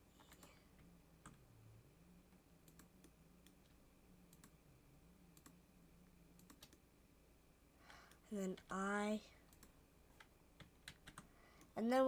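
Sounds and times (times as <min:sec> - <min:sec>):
keyboard and mouse clicks: 0:00.2 - 0:01.4, 0:02.6 - 0:04.6, 0:05.4 - 0:05.6, 0:06.4 - 0:06.8, 0:09.5 - 0:11.8.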